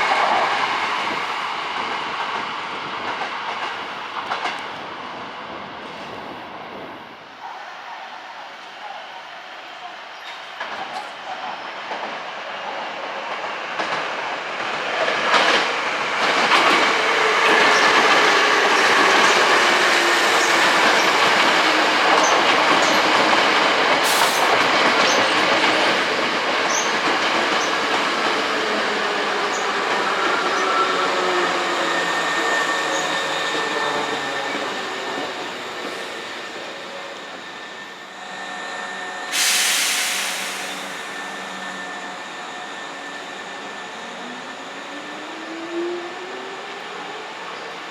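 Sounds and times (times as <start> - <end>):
electric train passing: 11.8 - 47.9.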